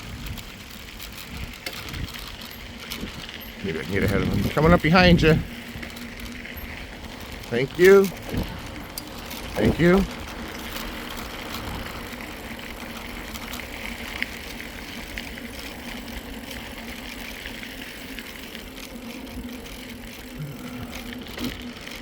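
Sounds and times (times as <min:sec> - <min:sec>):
bike tyres rolling on trail: 0:00.0 - 0:22.0
wind on microphone: 0:03.0 - 0:05.9, 0:08.2 - 0:08.8.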